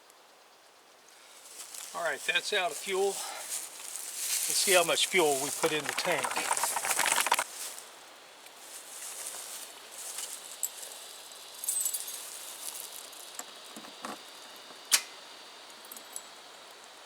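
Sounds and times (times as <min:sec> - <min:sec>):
sharp click: 0:14.9 - 0:15.2.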